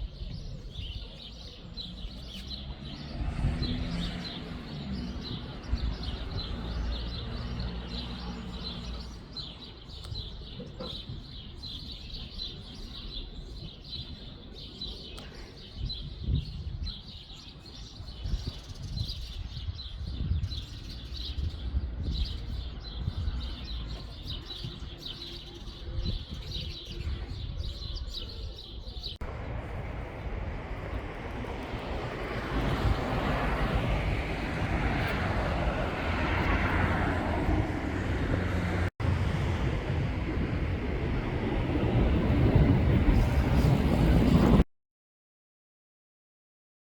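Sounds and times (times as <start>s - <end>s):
songbirds chirping: 0.0s - 44.6s
even rushing noise: 29.2s - 44.6s
steady low rumble: 29.2s - 44.6s.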